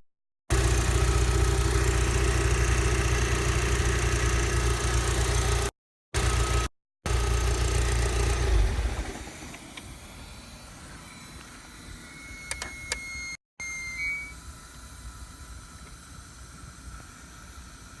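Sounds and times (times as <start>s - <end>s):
car engine running: 0.5s - 9.7s
short high beep: 12.4s - 14.4s.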